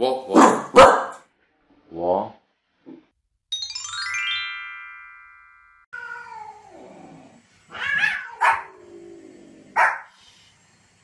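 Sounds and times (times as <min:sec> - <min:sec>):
dog barking sharply: 0:00.3 - 0:01.2, 0:09.8 - 0:10.1
cat meowing: 0:05.9 - 0:06.9, 0:07.7 - 0:08.8.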